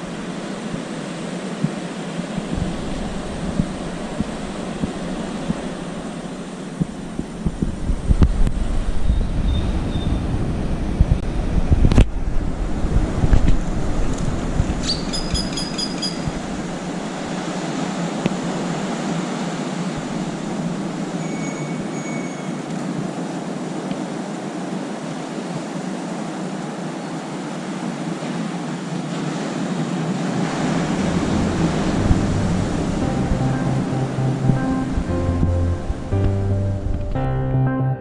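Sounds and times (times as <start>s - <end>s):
rushing outdoor noise: 0.0s - 37.2s
high chirps: 14.8s - 16.3s
faint thin whistles: 21.2s - 22.6s.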